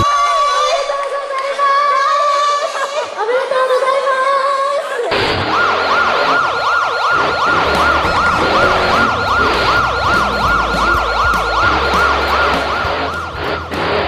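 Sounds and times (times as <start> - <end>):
siren yelping: 5.1 - 13.8
background music: 7.0 - 14.0.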